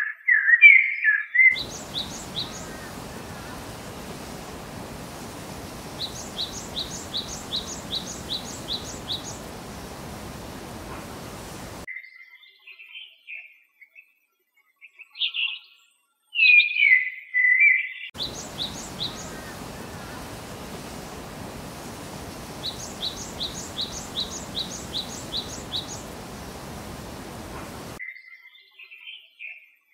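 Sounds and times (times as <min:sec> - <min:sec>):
birds warbling: 0:01.6 - 0:11.9, 0:18.2 - 0:28.0
steady hiss: 0:01.6 - 0:11.9, 0:18.2 - 0:28.0.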